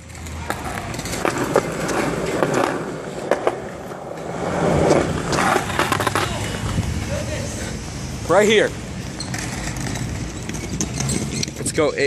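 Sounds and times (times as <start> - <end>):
skateboard clacks: 0.0 - 6.9
skateboard wheels rumbling: 0.0 - 11.8.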